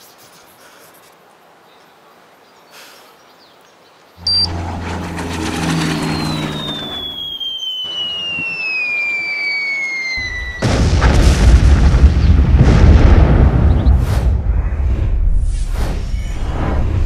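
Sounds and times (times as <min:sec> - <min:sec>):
falling bomb whistle: 0:04.2 - 0:10.8
loud explosion with low rumble: 0:10.2 - 0:16.0.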